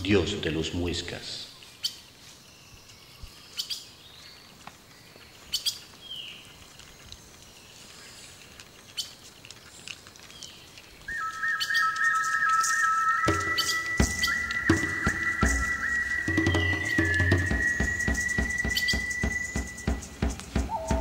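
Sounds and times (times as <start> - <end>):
birds chirping: 0.0 - 21.0
faint outdoor ambience: 0.0 - 21.0
music with high held tone: 13.3 - 21.0.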